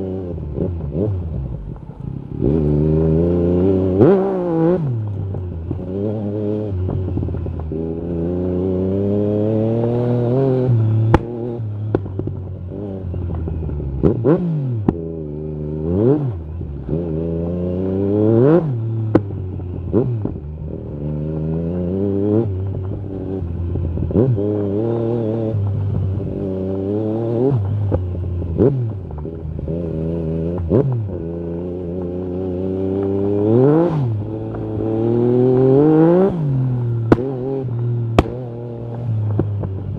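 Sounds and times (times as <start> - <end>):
motorcycle engine revving: 0.0 - 39.9
exhaust cracks: 37.0 - 39.9.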